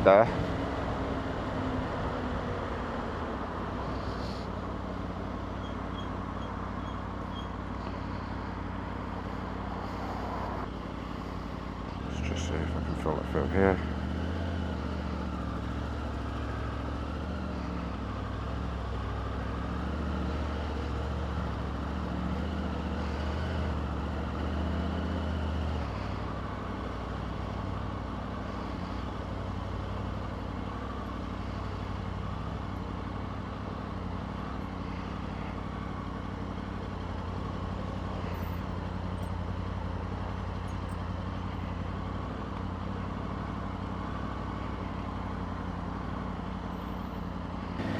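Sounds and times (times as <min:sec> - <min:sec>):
road noise: 0:00.0 - 0:47.9
motorbike engine running: 0:07.3 - 0:47.9.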